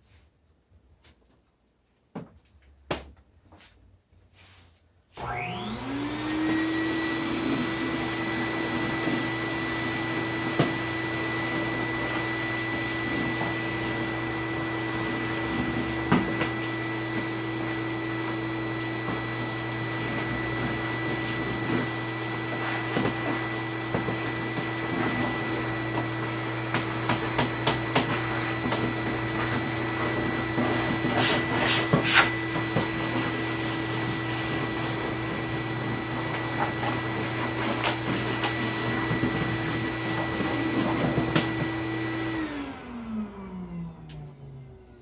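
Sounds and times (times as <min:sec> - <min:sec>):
vacuum cleaner motor whining: 0:05.1 - 0:45.0.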